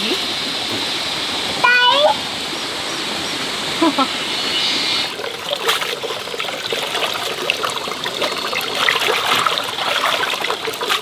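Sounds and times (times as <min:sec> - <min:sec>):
rainwater trickling and splattering: 0:05.0 - 0:11.0.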